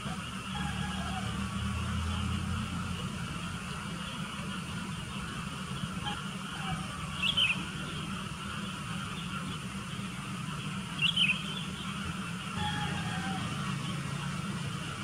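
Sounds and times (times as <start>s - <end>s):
steady low hum: 0.0s - 15.0s
bird chirping calls: 3.4s - 15.0s.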